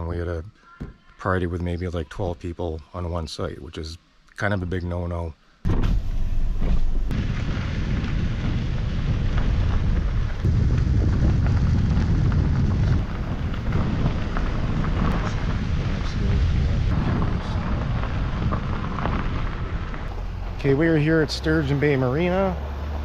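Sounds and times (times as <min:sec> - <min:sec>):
wind buffeting microphone: 0:06.6 - 0:23.0.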